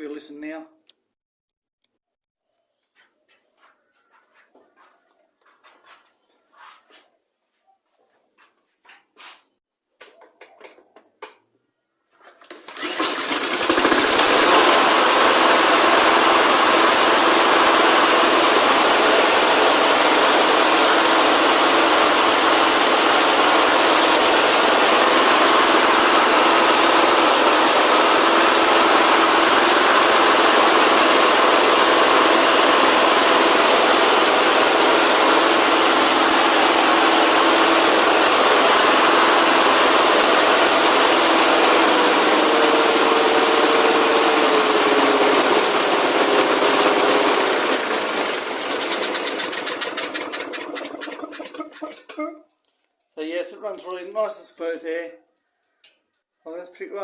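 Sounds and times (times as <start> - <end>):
lawn mower engine running: 12.2 - 52.3.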